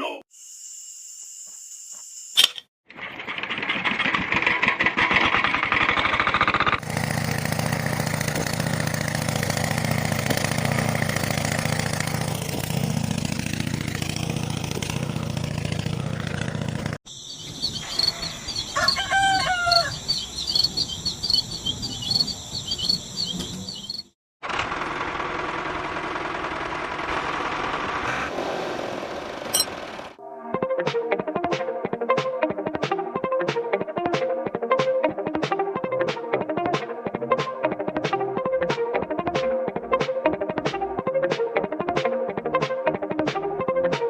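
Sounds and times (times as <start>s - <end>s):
small engine running: 3.2s - 17.0s, 24.4s - 30.2s
high-pitched chirping: 17.1s - 24.1s
rooster crowing: 17.7s - 21.4s.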